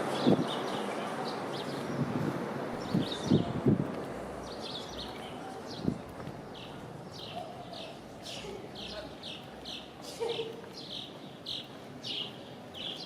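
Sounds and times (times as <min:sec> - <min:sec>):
bird chirping: 0:02.8 - 0:03.6, 0:04.4 - 0:13.0.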